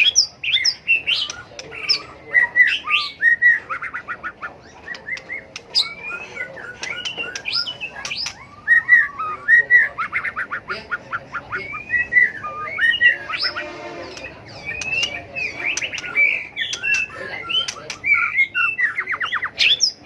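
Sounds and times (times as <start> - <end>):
bird singing whistled phrases: 0.0 - 20.0
bird sharp clicking notes: 3.8 - 8.4, 14.1 - 18.4.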